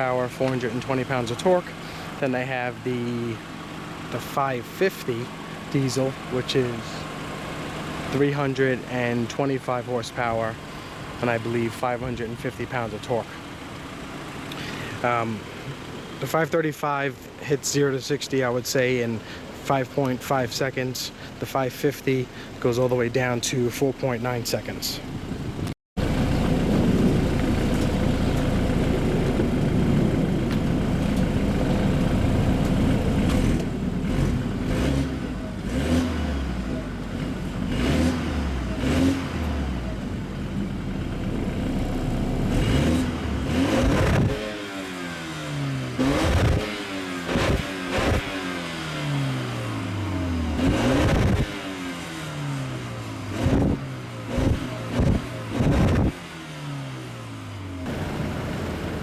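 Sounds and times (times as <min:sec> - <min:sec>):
car engine accelerating: 0:25.5 - 0:59.0.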